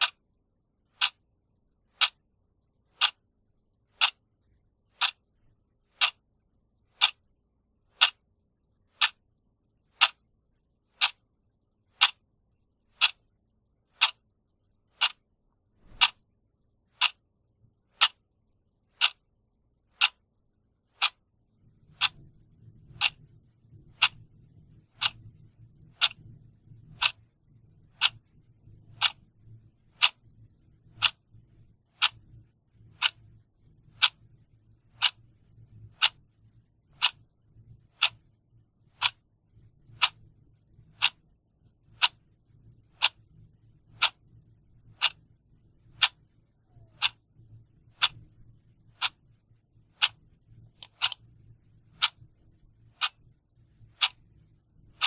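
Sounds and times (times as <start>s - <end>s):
clock ticking: 0.0s - 0.2s, 0.9s - 1.2s, 1.9s - 2.2s, 2.9s - 3.2s, 3.9s - 4.3s, 4.9s - 5.3s, 5.9s - 6.3s, 6.9s - 8.2s, 8.9s - 9.3s, 9.9s - 10.3s, 10.9s - 11.3s, 11.9s - 12.2s, 12.9s - 13.2s, 13.9s - 14.3s, 14.9s - 16.2s, 16.9s - 17.2s, 17.9s - 18.2s, 18.9s - 19.2s, 19.9s - 20.3s, 20.9s - 21.3s, 21.9s - 27.3s, 27.9s - 29.3s, 29.9s - 31.2s, 31.9s - 34.3s, 34.9s - 35.3s, 35.9s - 36.3s, 36.9s - 37.3s, 37.9s - 38.3s, 38.9s - 40.3s, 40.9s - 41.2s, 42.0s - 42.3s, 42.9s - 54.3s
faint low rumble: 0.0s - 55.0s.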